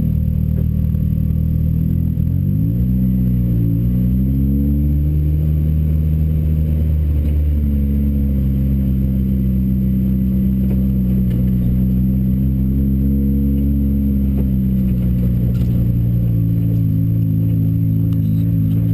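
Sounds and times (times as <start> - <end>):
car engine running at low revs: 0.0 - 18.9.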